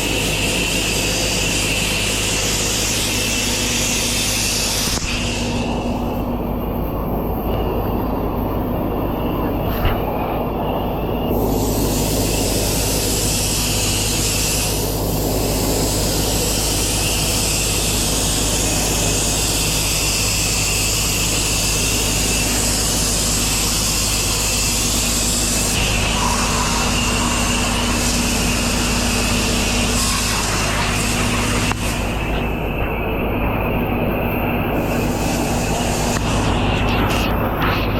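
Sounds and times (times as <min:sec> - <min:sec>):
high-pressure water spray hissing: 0:00.0 - 0:05.7, 0:11.3 - 0:37.9
pressure washer engine hum: 0:10.8 - 0:37.9.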